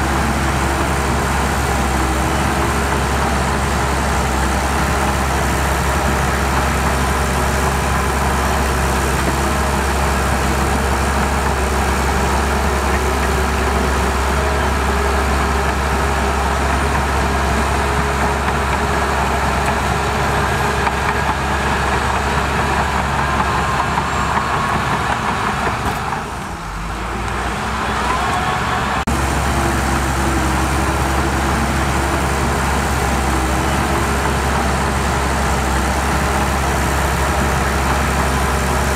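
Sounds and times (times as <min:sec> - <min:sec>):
construction machinery engine drone: 0:00.0 - 0:38.9.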